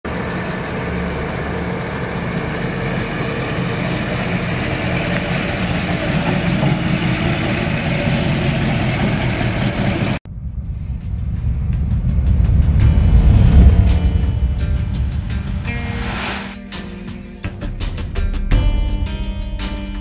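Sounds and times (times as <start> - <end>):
big-block engine idling: 0.1 - 15.7.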